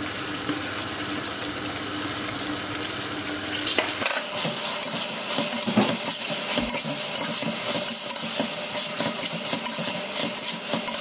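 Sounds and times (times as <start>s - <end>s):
onions and tomatoes sizzling in oil: 0.0s - 11.0s
spoon scraping and stirring: 4.3s - 11.0s.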